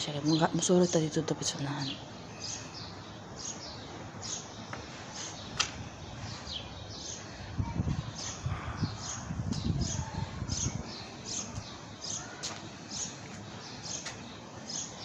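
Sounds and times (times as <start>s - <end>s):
small birds chirping: 0.0s - 15.0s
wind on microphone: 5.6s - 11.8s.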